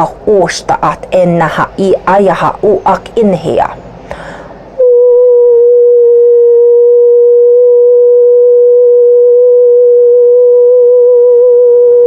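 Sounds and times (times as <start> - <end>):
singing bowl tone: 4.8 - 12.0.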